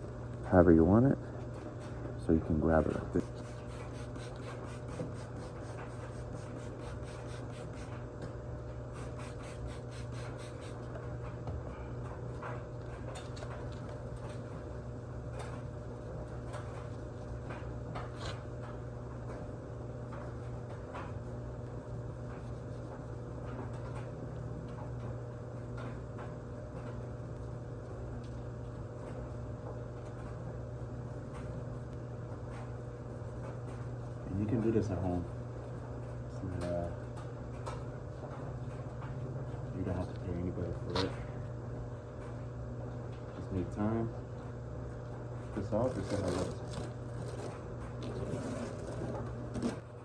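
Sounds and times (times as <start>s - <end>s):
steady low hum: 0.0s - 50.0s
sandpaper scraping plastic: 45.6s - 49.8s.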